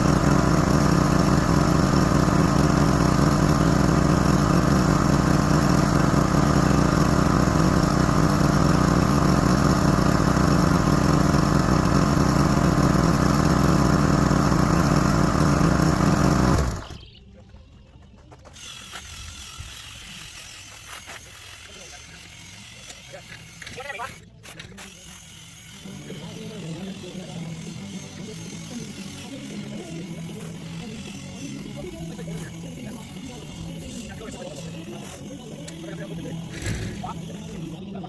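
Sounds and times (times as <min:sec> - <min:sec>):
pressure washer engine running: 0:00.0 - 0:17.0, 0:25.5 - 0:38.0.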